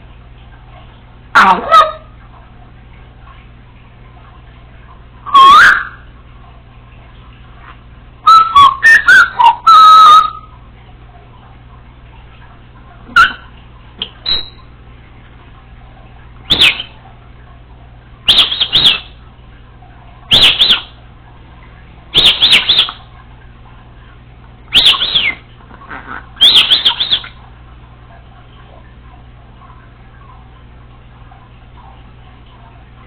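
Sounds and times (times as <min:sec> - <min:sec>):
parrot chirping: 0:14.2 - 0:14.6, 0:16.5 - 0:17.0, 0:18.2 - 0:19.2, 0:20.3 - 0:21.0, 0:22.1 - 0:23.0, 0:24.7 - 0:27.4.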